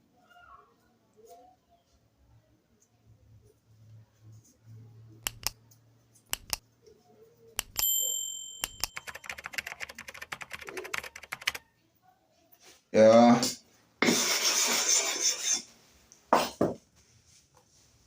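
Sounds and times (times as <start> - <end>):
crackling clicks: 5.2 - 5.6, 6.3 - 6.6, 7.6 - 7.8
bright metallic ring: 7.8 - 9.0.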